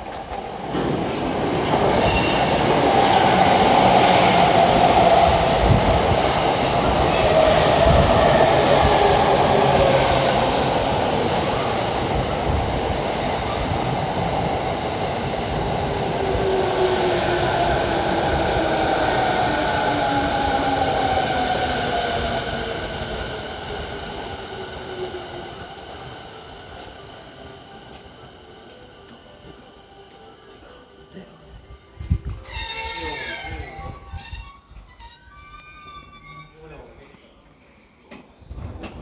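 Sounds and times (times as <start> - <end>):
train wheels rumbling on rails: 0.0 - 26.1.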